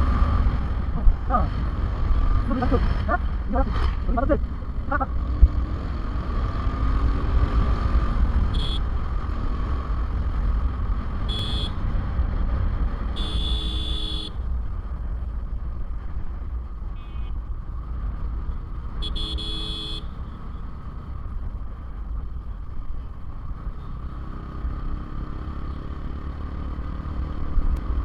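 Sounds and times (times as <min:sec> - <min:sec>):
wind and road rumble: 0:00.0 - 0:28.0
vehicle horns honking: 0:08.5 - 0:08.9, 0:11.2 - 0:11.8, 0:13.1 - 0:14.4, 0:16.9 - 0:17.4, 0:19.0 - 0:20.1.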